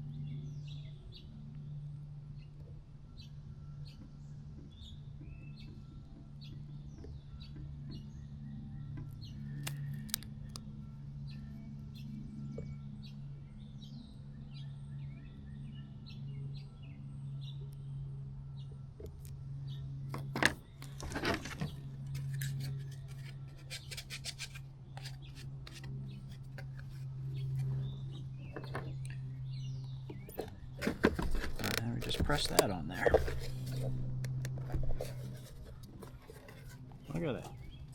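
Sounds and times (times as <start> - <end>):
steady low hum: 0.0 - 37.9
hands rustling plastic: 20.2 - 28.0, 30.2 - 37.9.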